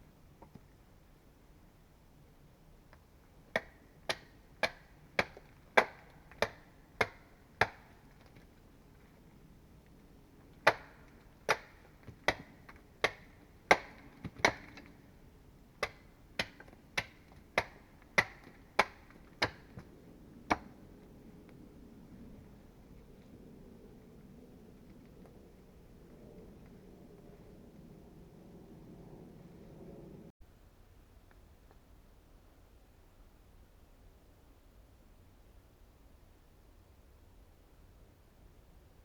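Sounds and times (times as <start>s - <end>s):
hand tool striking wood: 3.6s - 8.4s, 10.6s - 14.9s, 15.8s - 19.8s.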